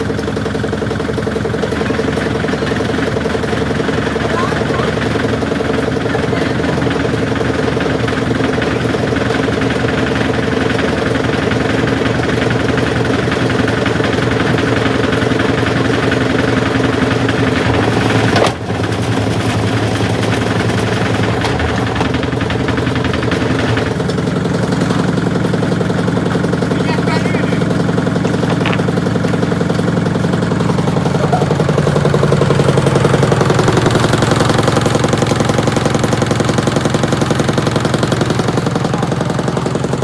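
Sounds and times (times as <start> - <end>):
washing machine motor hum: 0.0 - 40.0
bricks rattling in drum: 16.7 - 26.8, 27.7 - 31.8.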